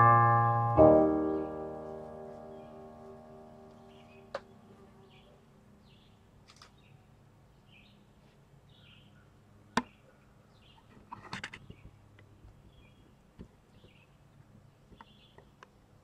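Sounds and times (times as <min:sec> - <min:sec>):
piano notes: 0:00.0 - 0:05.2
birds chirping: 0:00.0 - 0:10.9, 0:12.6 - 0:15.6.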